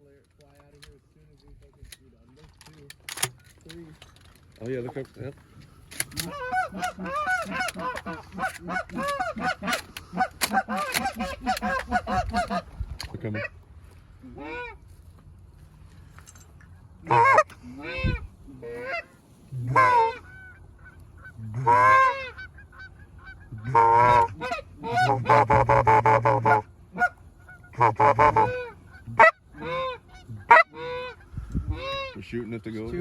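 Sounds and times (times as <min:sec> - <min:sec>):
goose honking: 0:06.1 - 0:12.7, 0:17.0 - 0:32.9.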